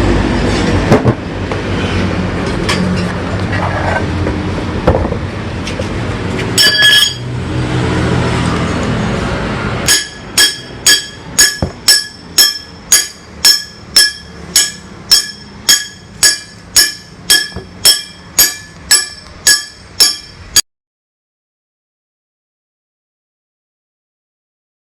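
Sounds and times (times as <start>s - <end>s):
passing train rumbling: 0.0s - 20.6s
level-crossing bell dinging: 6.6s - 7.3s.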